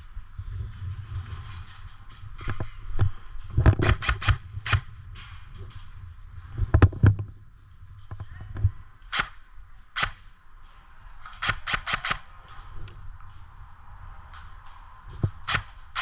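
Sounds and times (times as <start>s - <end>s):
airsoft guns firing: 3.8s - 4.9s, 9.1s - 9.4s, 10.0s - 10.3s, 11.3s - 12.5s, 15.3s - 16.0s
single clicks: 9.0s - 9.4s, 10.0s - 10.2s, 11.3s - 12.3s.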